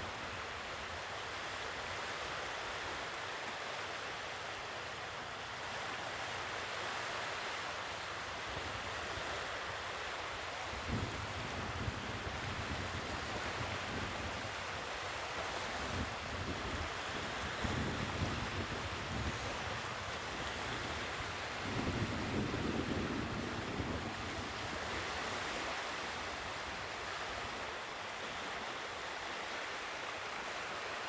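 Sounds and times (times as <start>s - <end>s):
sea waves washing on shore: 0.0s - 31.0s
wind buffeting microphone: 15.7s - 26.5s.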